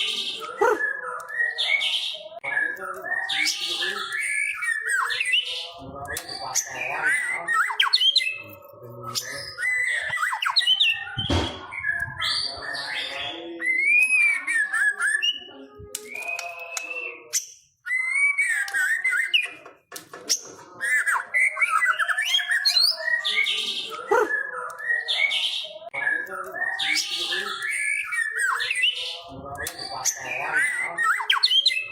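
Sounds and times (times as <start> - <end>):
bird singing varied whistles: 9.2 - 19.5.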